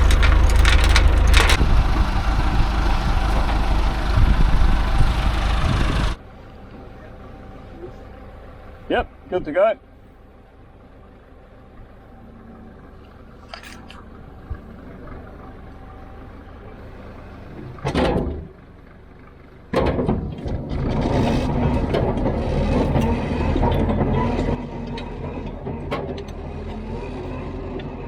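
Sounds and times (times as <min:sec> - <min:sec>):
engine running low: 0:00.0 - 0:28.0
heavy engine running loud: 0:00.0 - 0:28.0.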